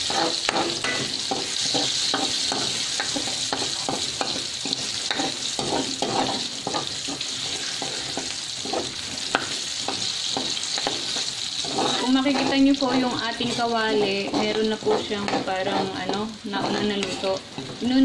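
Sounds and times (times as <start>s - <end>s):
garlic sizzling in hot oil: 0.0s - 18.0s
metal spatula scraping wok: 0.0s - 18.0s.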